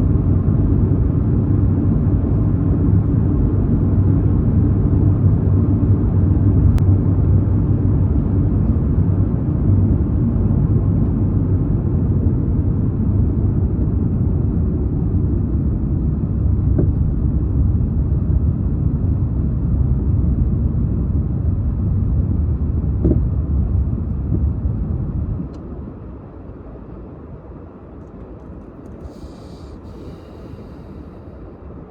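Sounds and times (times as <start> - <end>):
car interior road and engine rumble: 15.0 - 31.8.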